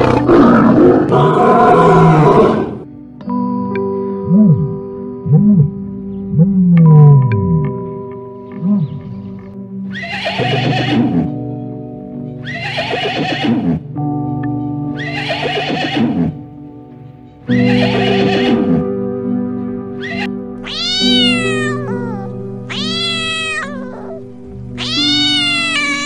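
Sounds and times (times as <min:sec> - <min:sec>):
background music sustained chords: 0:00.0 - 0:26.0
horse whinnying: 0:09.9 - 0:11.4, 0:12.4 - 0:13.8, 0:15.0 - 0:16.4, 0:17.5 - 0:18.9, 0:20.0 - 0:24.2, 0:24.8 - 0:26.0.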